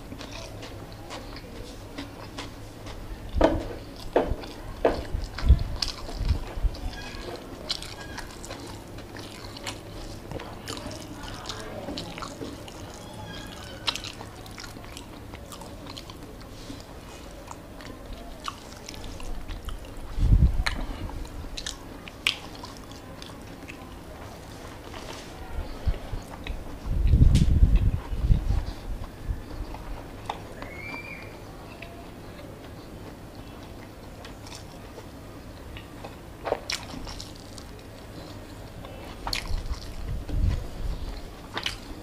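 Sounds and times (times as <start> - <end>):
chewing: 0.0 - 42.0.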